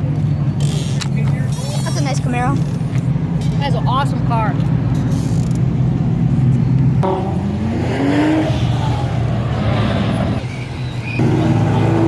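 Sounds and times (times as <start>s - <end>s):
other engines running: 0.0s - 12.0s
car engine accelerating: 6.3s - 10.4s, 11.1s - 12.0s.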